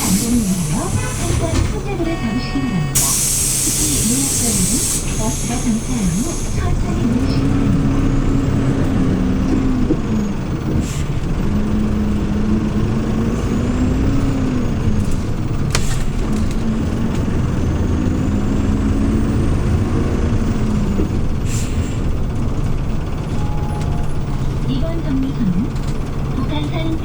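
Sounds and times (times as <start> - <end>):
air hisses: 0.0 - 1.5, 3.0 - 6.6
bus engine running: 0.0 - 27.0.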